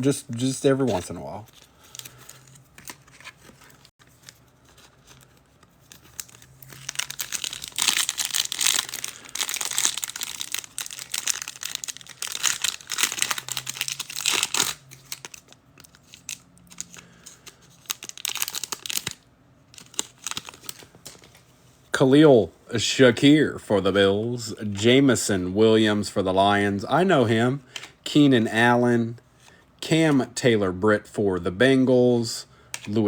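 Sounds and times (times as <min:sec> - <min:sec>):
foil wrapper tearing and crinkling: 0:05.9 - 0:17.0, 0:17.8 - 0:19.2, 0:19.8 - 0:20.8.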